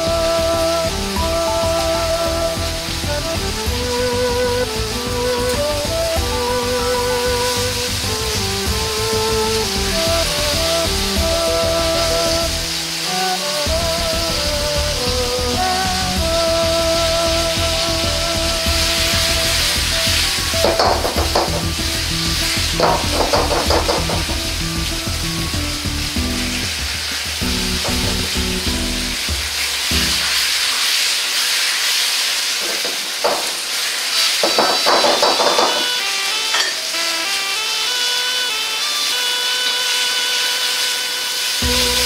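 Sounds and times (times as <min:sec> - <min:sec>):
meat sizzling in a wok: 0:00.0 - 0:37.0, 0:37.6 - 0:42.0
wok rattling and scraping: 0:29.4 - 0:36.9.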